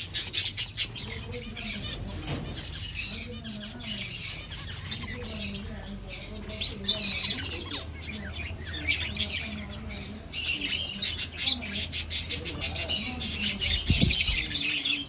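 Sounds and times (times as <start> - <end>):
finches chirping: 0.0 - 15.0.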